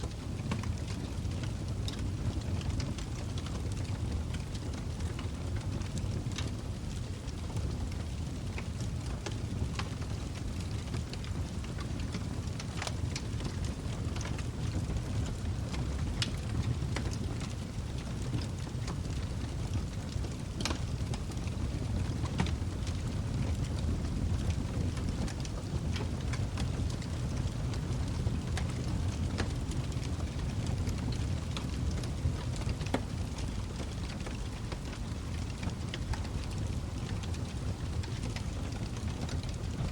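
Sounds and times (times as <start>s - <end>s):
log fire crackling: 0.0s - 39.9s.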